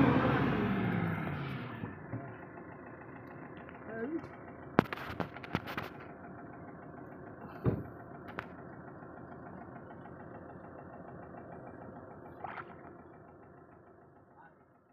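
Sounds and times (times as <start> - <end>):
engine idling: 0.0 - 14.9
thump: 7.6 - 7.9.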